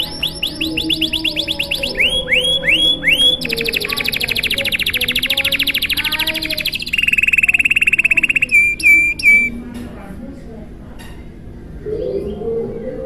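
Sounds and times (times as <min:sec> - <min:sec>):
canary singing: 0:00.0 - 0:09.6.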